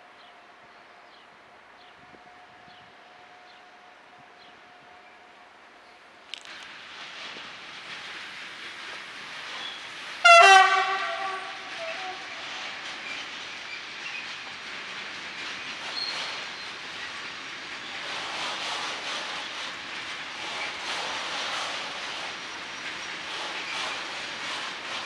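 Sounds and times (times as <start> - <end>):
freight wagons rolling: 7.2 - 25.0
locomotive horn blast: 10.2 - 12.4.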